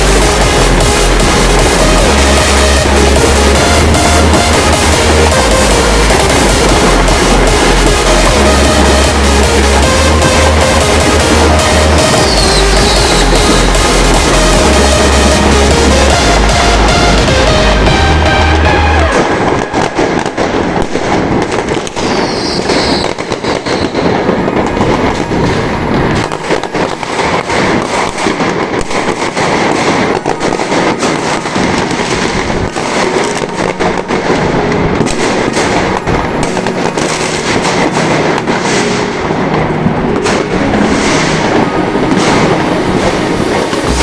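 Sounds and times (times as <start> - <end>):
firecracker bangs and crackles: 0.0 - 44.0
falling whistle: 22.0 - 24.2.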